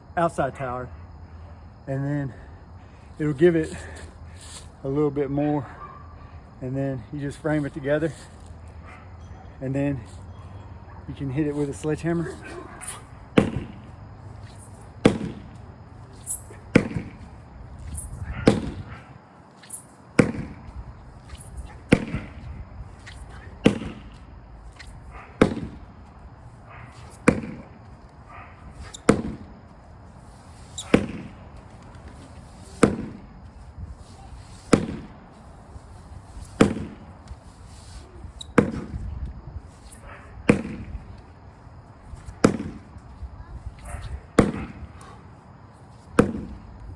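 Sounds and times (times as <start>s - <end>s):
sledgehammer thudding on tire: 12.4s - 19.1s, 20.2s - 26.0s, 27.0s - 27.8s, 28.8s - 29.7s, 30.8s - 31.7s, 32.6s - 33.4s, 34.7s - 35.3s, 36.4s - 37.1s, 38.5s - 39.1s, 40.5s - 41.0s, 42.3s - 43.0s, 44.4s - 44.8s, 46.1s - 46.7s.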